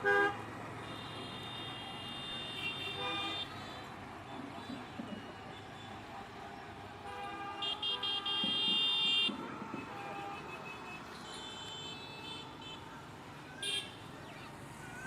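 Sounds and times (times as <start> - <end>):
vehicle horn toots: 0.0 - 3.5, 7.1 - 12.8
vehicle noise rumble: 0.0 - 15.0.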